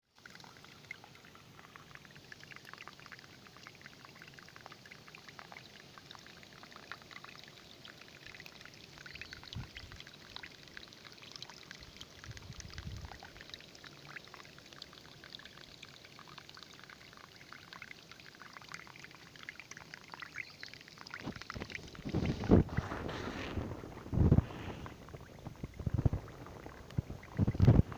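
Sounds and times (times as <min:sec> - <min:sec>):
water trickling and splashing: 0:00.1 - 0:27.9
low thumps: 0:21.6 - 0:27.9.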